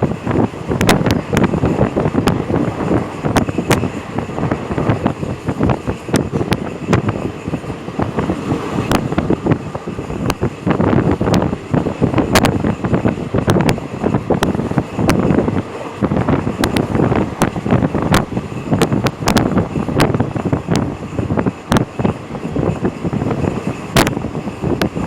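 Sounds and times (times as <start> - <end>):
moving vehicle rumble: 0.0 - 25.0
wind buffeting microphone: 0.0 - 25.0
sharp clicks and knocks: 10.2 - 11.5.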